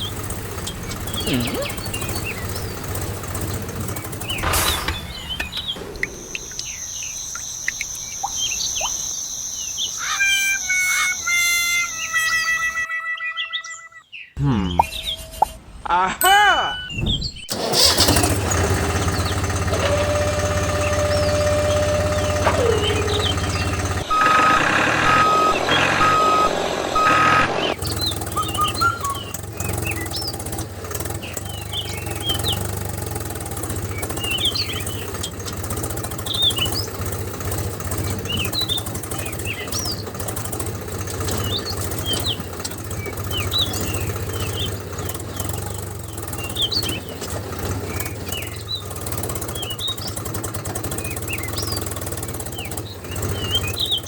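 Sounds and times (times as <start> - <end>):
pulsed beeping: 0.0 - 12.8, 19.8 - 29.3
engine-like hum: 0.0 - 12.9, 17.4 - 54.0
birds chirping: 0.0 - 54.0
held tone dropping in pitch: 19.9 - 27.8.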